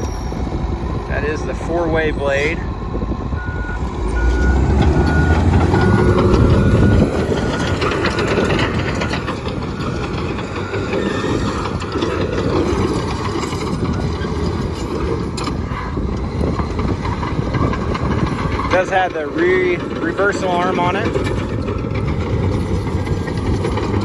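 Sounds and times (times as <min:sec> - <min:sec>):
reversing alarm beeping: 0:00.0 - 0:14.2
bulldozer diesel engine: 0:00.0 - 0:24.0
steel tracks clanking: 0:00.0 - 0:24.0.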